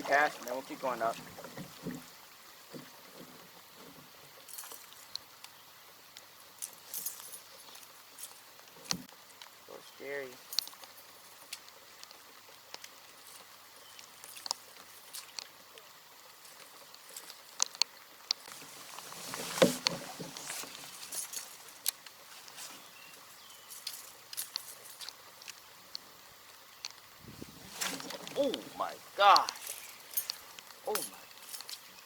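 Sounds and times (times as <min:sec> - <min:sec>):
raindrops tapping: 0:27.7 - 0:31.6.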